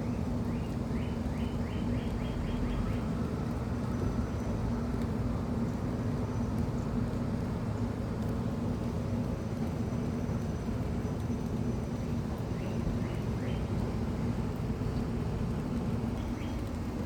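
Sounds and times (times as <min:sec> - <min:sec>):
small bird singing: 0:00.0 - 0:03.1, 0:12.6 - 0:13.7, 0:16.2 - 0:16.7.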